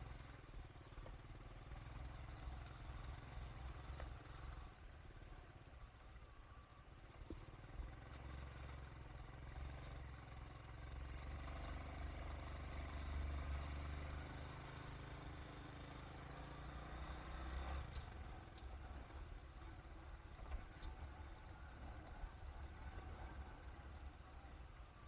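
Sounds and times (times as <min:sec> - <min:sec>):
vehicle engine rumbling: 0:00.0 - 0:25.0.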